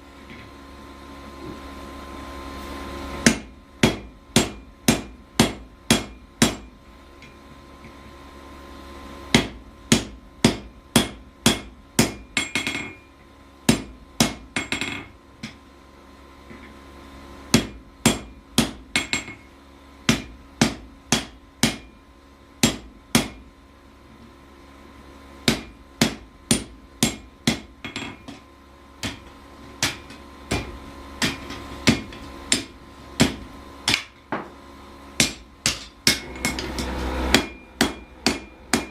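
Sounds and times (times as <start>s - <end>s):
hammer on hot steel over anvil: 3.2s - 8.0s, 9.3s - 13.1s, 13.7s - 15.6s, 17.5s - 22.0s, 22.6s - 23.5s, 25.4s - 34.6s, 35.2s - 38.9s.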